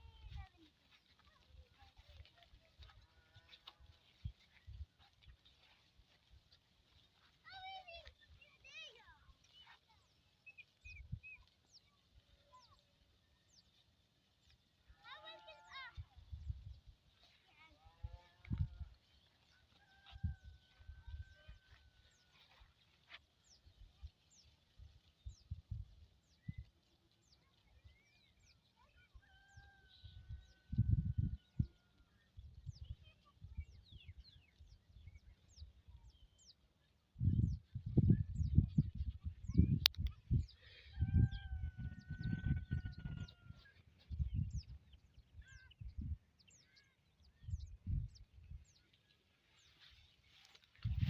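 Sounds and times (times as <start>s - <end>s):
birds chirping: 0.0s - 51.0s
low rumbling microphone noise: 37.2s - 43.5s.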